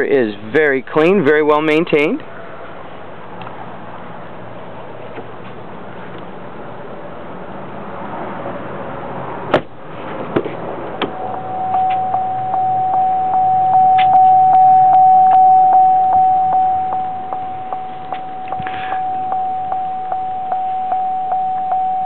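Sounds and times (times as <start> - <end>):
dashboard warning chime: 11.1 - 22.0.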